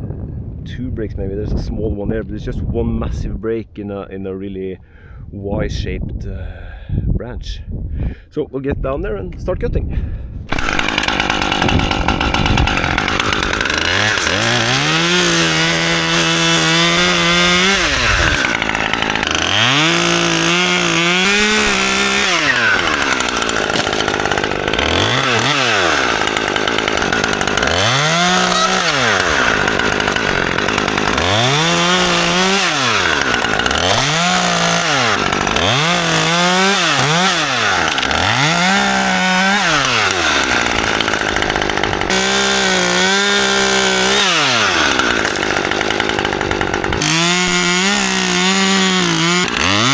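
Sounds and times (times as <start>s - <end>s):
chainsaw revving and idling: 10.5s - 49.9s.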